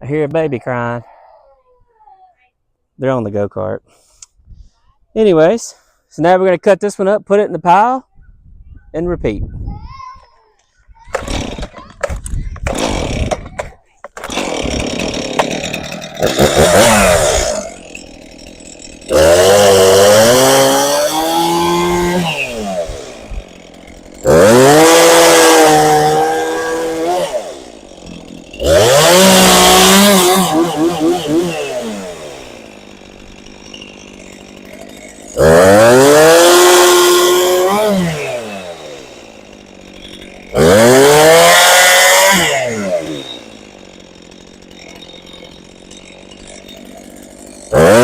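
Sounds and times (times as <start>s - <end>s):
chainsaw idling: 11.1s - 11.9s, 12.6s - 48.0s
chainsaw revving and cutting: 11.1s - 11.9s, 12.6s - 48.0s.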